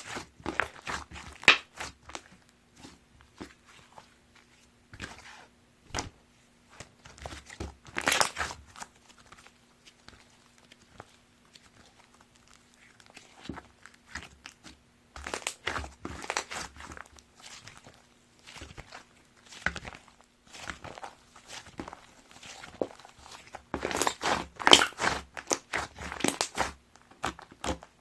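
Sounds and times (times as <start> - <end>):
hands squishing slime: 0.0 - 28.0.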